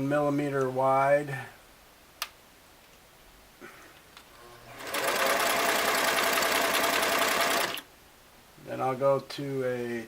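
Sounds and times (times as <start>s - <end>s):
sewing machine chattering: 4.7s - 7.8s.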